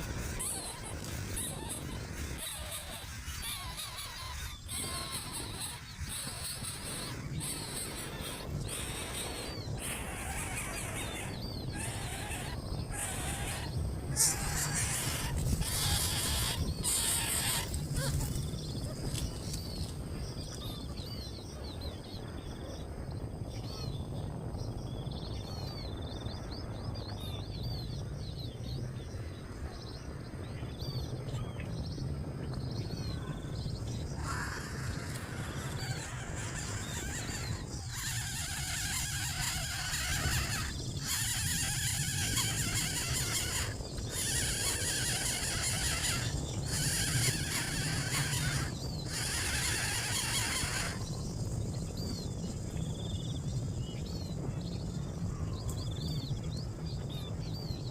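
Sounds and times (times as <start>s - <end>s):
small birds chirping: 0.0s - 57.9s
steady low hum: 0.0s - 57.9s
noisy rustling bursts: 33.4s - 54.6s.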